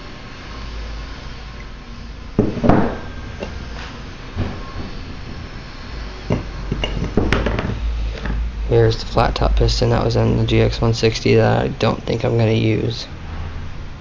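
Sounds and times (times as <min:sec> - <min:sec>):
metal parts knocking and clunking: 0:06.3 - 0:08.4.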